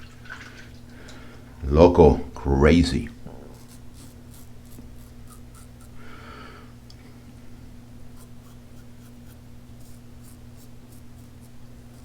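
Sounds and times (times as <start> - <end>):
razor scraping stubble: 2.7 - 6.1, 8.0 - 12.0.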